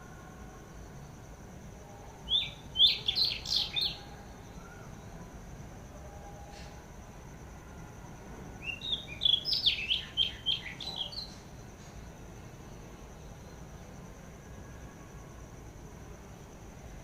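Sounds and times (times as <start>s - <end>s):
faint high-pitched whine: 0.0s - 17.0s
songbird chirping: 1.3s - 5.4s, 7.4s - 15.4s.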